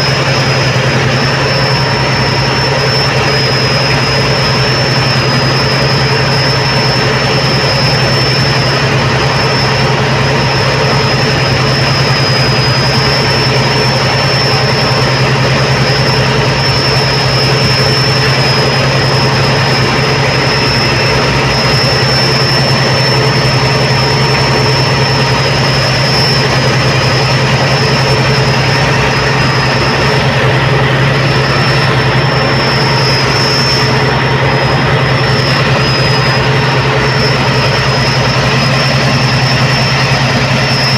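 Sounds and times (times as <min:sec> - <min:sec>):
boat diesel engines droning: 0:00.0 - 0:40.9
high whine: 0:00.0 - 0:40.9.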